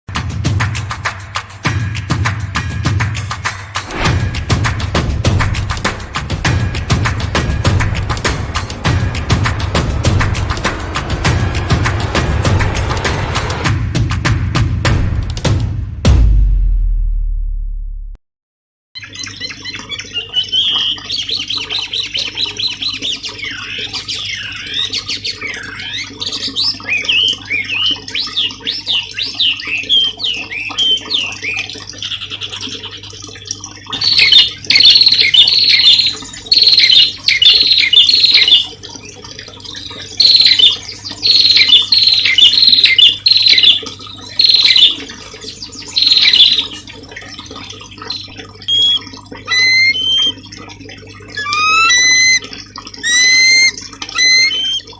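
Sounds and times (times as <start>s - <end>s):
songbird singing: 34.0s - 38.7s, 39.9s - 46.8s, 48.1s - 50.4s, 51.4s - 52.4s, 53.0s - 54.9s.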